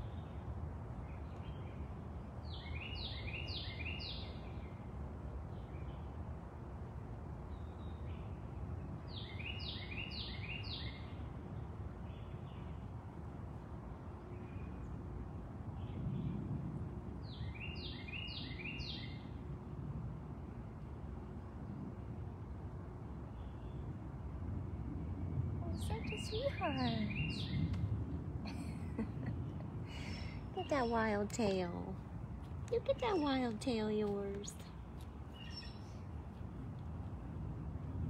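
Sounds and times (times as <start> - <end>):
low outdoor background rumble: 0.0 - 38.0
songbird singing falling notes: 25.8 - 27.9.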